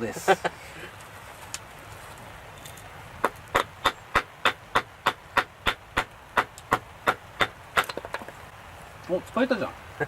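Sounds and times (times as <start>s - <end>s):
small axe chopping wood: 3.2s - 8.4s.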